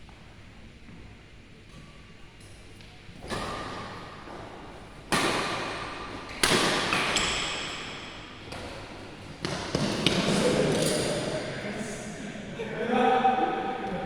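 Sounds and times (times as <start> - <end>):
rackets hitting shuttlecock: 3.2 - 11.2.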